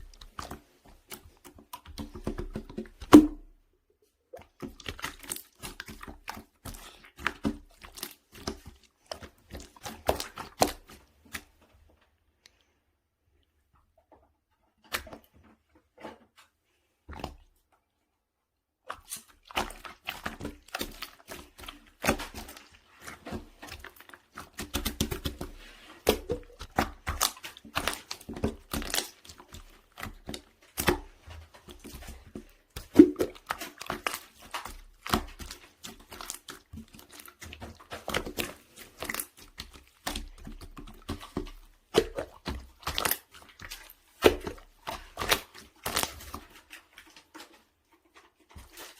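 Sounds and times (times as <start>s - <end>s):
slime squished by hand: 18.8s - 47.5s.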